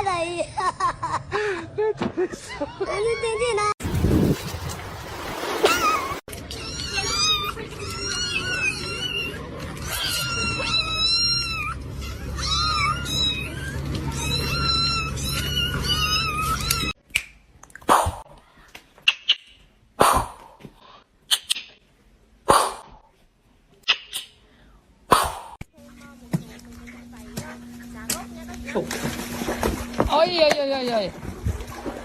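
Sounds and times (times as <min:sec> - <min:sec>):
cat meowing and yowling: 0:06.5 - 0:17.0.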